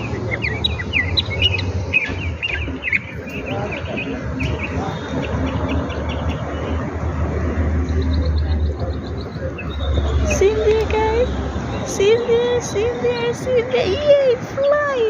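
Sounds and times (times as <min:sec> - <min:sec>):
songbird chirping: 0:00.0 - 0:06.8.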